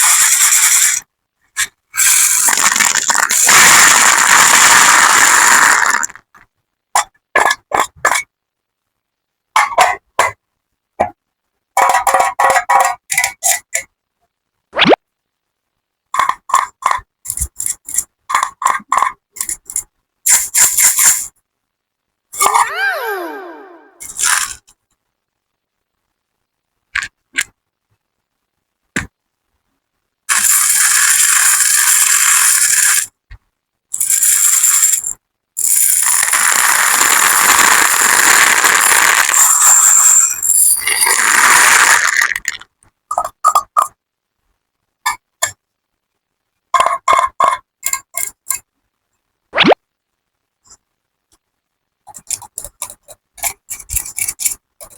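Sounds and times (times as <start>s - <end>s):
small hard objects clicking: 34.0s - 44.0s.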